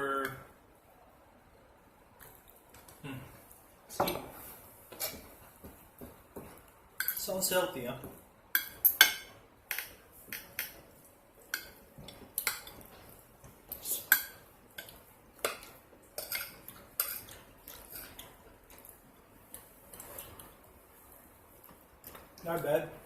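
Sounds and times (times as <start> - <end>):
cutlery clinking on a plate: 8.6 - 10.8, 14.0 - 18.3.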